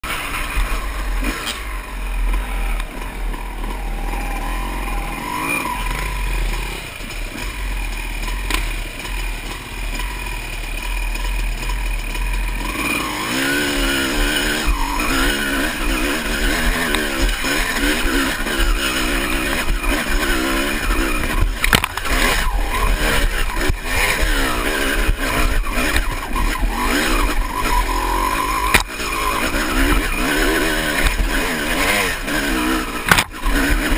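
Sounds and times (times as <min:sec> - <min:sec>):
dirt bike engine revving: 0:00.0 - 0:33.9
sharp knocks: 0:33.1 - 0:33.4.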